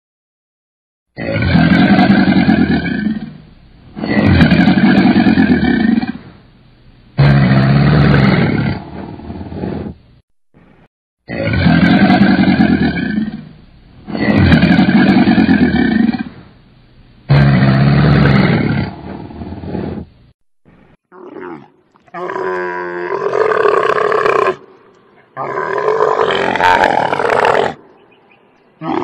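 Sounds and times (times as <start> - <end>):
crocodile bellowing: 21.1 - 28.2, 28.8 - 29.0
camel grumbling: 25.4 - 27.8, 28.8 - 29.0.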